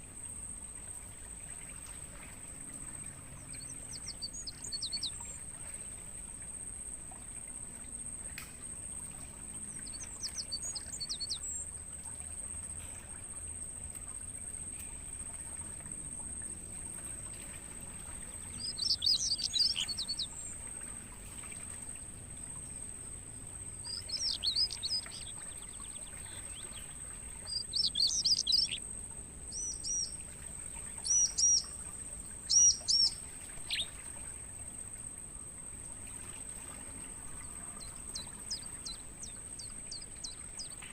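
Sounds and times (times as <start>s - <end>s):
crickets trilling: 0.0s - 40.9s
songbird calling: 2.9s - 5.8s, 9.2s - 11.8s, 18.0s - 28.8s, 29.4s - 34.1s, 37.2s - 40.9s.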